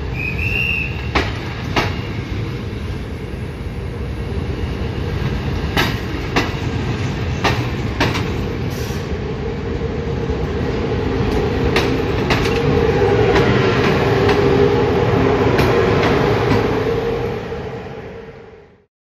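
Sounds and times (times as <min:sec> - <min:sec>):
train rumble: 0:00.0 - 0:18.8
wheels clicking over rail joints: 0:05.7 - 0:08.5, 0:11.3 - 0:14.5.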